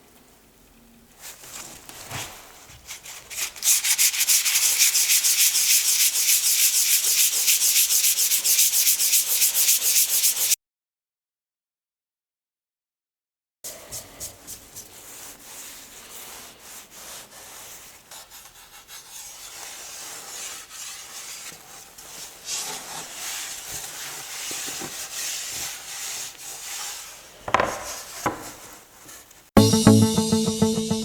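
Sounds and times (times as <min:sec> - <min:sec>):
wood being sanded by hand: 0:02.9 - 0:10.6, 0:14.6 - 0:28.6
sharp knocks: 0:27.5 - 0:28.4.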